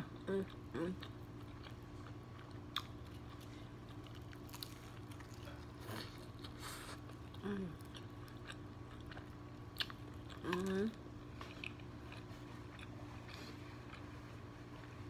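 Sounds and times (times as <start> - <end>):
chewing fried chicken: 0.0 - 15.0
steady low hum: 0.0 - 15.0
soft crunches of breaded skin: 2.8 - 7.2.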